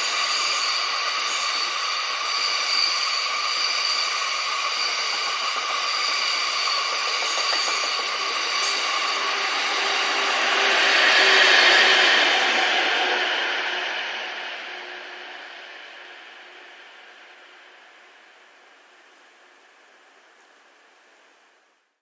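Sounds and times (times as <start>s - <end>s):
train wheels squealing: 0.0s - 17.1s
rush of train running gear: 0.0s - 17.7s.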